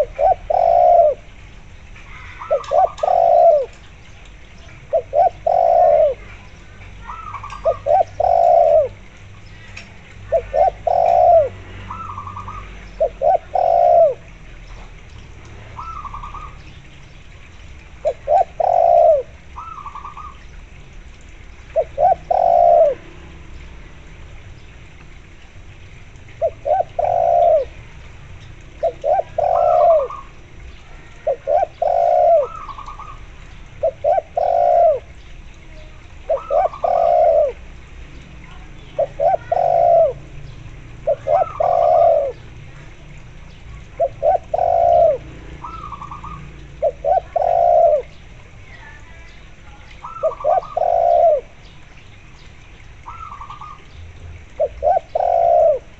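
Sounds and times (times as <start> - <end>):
dove cooing: 0.0 - 1.4, 2.1 - 3.8, 4.8 - 14.5, 15.7 - 16.6, 18.0 - 20.4, 21.7 - 23.3, 26.3 - 27.8, 28.7 - 37.8, 38.5 - 49.0, 49.6 - 51.7, 53.0 - 55.9
higher-pitched dove coos: 0.0 - 1.4, 2.0 - 3.8, 4.8 - 14.6, 15.7 - 16.6, 18.0 - 20.4, 21.6 - 23.4, 26.3 - 27.8, 28.7 - 37.8, 38.5 - 43.1, 43.7 - 49.0, 49.6 - 51.7, 53.0 - 55.9.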